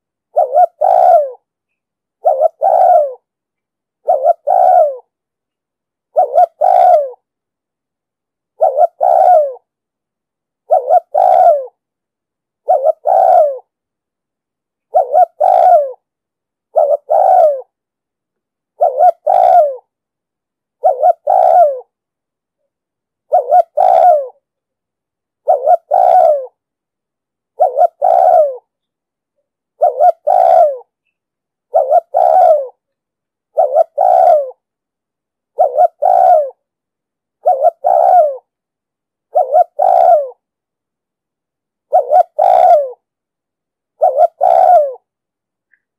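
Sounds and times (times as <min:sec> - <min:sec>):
dove cooing: 0:00.0 - 0:01.5, 0:02.2 - 0:03.3, 0:04.0 - 0:05.1, 0:06.1 - 0:07.3, 0:08.6 - 0:09.7, 0:10.7 - 0:11.8, 0:12.6 - 0:13.7, 0:14.9 - 0:16.1, 0:16.7 - 0:17.8, 0:18.8 - 0:19.9, 0:20.8 - 0:22.0, 0:23.3 - 0:24.4, 0:25.4 - 0:26.6, 0:27.6 - 0:28.7, 0:29.8 - 0:31.0, 0:31.7 - 0:32.9, 0:33.5 - 0:34.7, 0:35.5 - 0:36.7, 0:37.4 - 0:38.5, 0:39.3 - 0:40.4, 0:41.9 - 0:43.1, 0:44.0 - 0:45.1.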